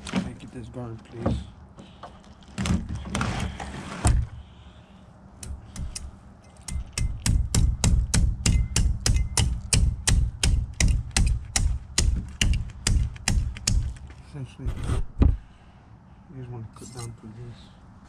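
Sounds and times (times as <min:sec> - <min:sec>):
knife scraping: 0:16.8 - 0:17.2.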